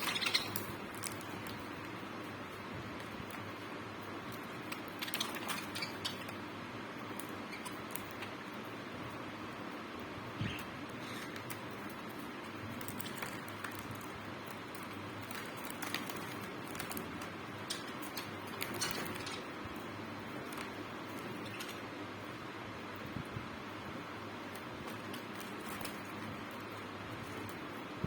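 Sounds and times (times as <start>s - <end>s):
small birds chirping: 0.0s - 22.4s.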